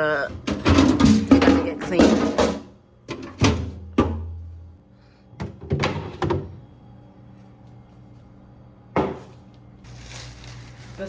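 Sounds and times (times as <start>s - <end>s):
items knocking in a fridge: 0.1s - 4.5s, 5.4s - 6.6s, 8.9s - 9.3s.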